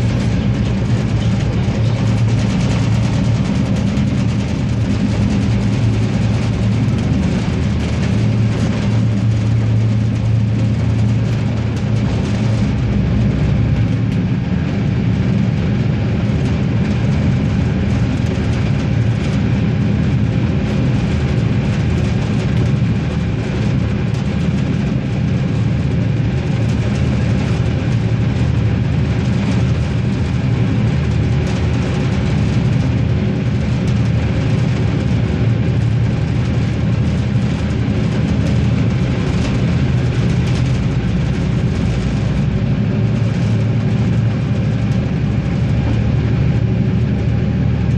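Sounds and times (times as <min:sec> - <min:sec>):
diesel railcar droning: 0:00.0 - 0:28.0.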